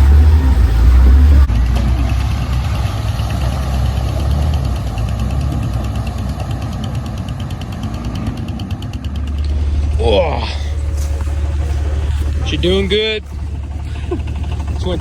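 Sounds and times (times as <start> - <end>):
heavy bass: 0.0 - 6.7, 9.2 - 15.0
off-road vehicle engine running: 0.0 - 15.0.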